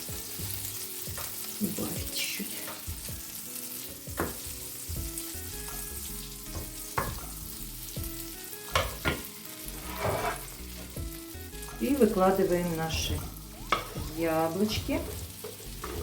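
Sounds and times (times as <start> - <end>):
butter sizzling in frying pan: 0.0 - 16.0
utensil knocking against pan: 8.7 - 9.2.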